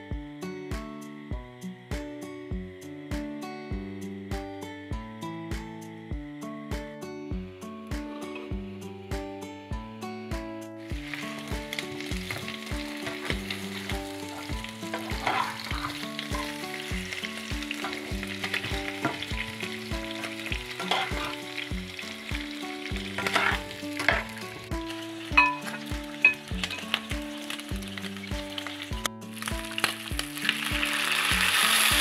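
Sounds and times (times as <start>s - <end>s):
background music with a beat: 0.0s - 32.0s
food sizzling in a pot: 10.8s - 32.0s
metal spoon scraping a pot: 14.8s - 16.0s, 20.8s - 21.5s, 23.2s - 24.4s.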